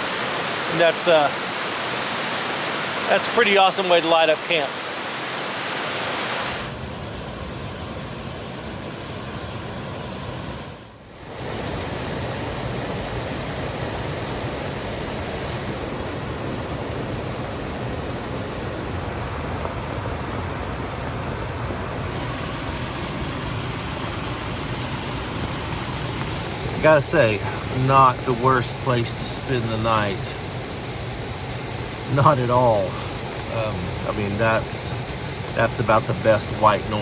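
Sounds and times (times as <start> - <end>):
heavy rain falling: 11.2 - 30.8.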